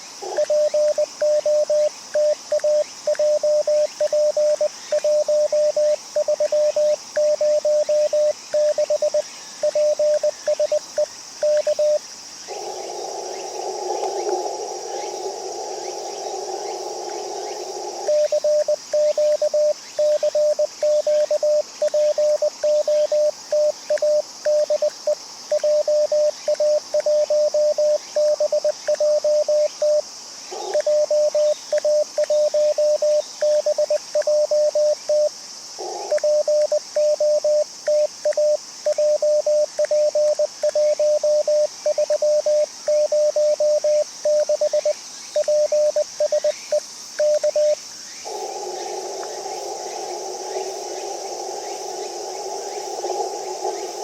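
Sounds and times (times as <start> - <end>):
morse code tone: 36.1 - 46.4.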